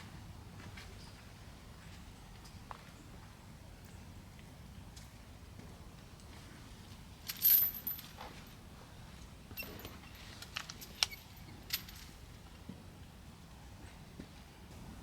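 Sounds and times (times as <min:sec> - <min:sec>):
metal jingling: 0:07.3 - 0:08.2, 0:09.6 - 0:12.2.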